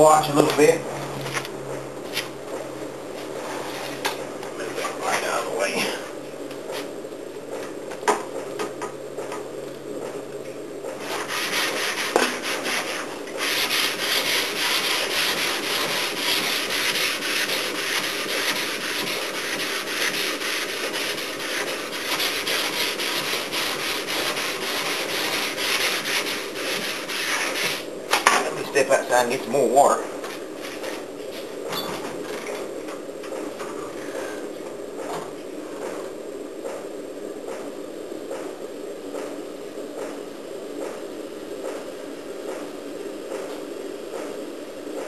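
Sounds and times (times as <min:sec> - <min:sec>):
sandpaper rubbing metal panel: 0:11.0 - 0:27.9.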